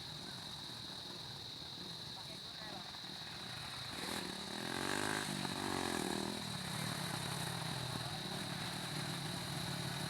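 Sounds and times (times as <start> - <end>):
small vehicle engine revving: 3.9 - 10.0.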